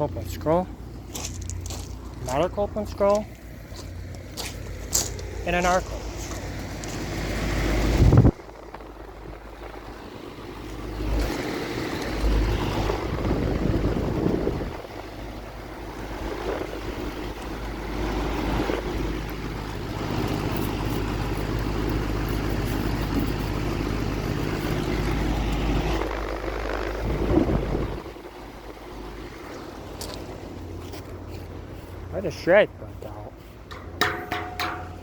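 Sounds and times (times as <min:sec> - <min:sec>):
air conditioner compressor hum: 0:00.0 - 0:35.0
wind buffeting microphone: 0:05.6 - 0:30.0.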